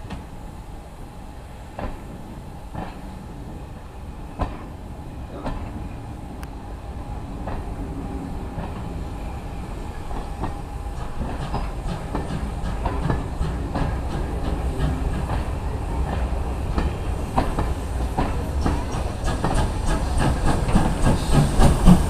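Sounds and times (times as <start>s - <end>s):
train wheels clicking over rail joints: 1.7s - 3.1s, 4.4s - 4.7s, 9.9s - 22.0s.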